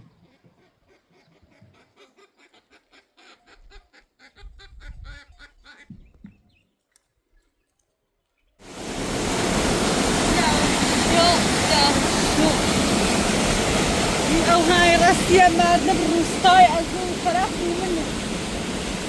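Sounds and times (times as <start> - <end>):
waterfall rushing: 8.6 - 19.0
geese honking: 9.1 - 19.0.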